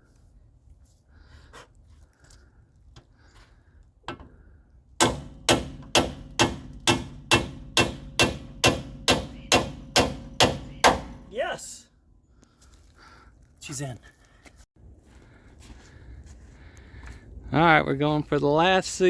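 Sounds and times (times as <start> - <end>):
hammer striking metal: 5.0 - 11.3.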